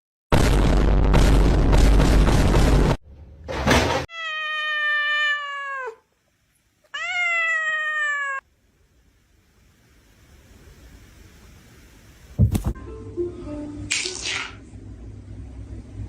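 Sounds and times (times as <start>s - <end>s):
cat meowing: 4.1s - 6.1s, 6.9s - 8.4s.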